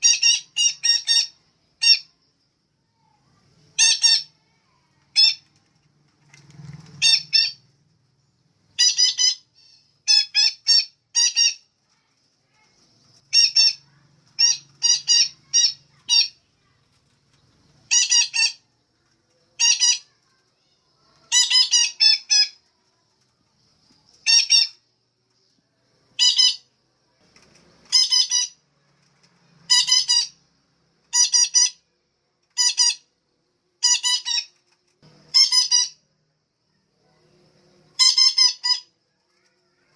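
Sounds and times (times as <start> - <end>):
parakeet squawking: 0.0 - 2.1, 3.8 - 4.3, 7.0 - 7.6, 8.8 - 11.7, 13.3 - 16.4, 17.9 - 18.6, 19.6 - 20.2, 21.2 - 22.6, 24.2 - 24.8, 26.2 - 26.6, 27.9 - 28.6, 29.7 - 30.4, 31.1 - 31.8, 32.6 - 33.1, 33.8 - 34.5, 35.3 - 36.0, 38.0 - 38.9.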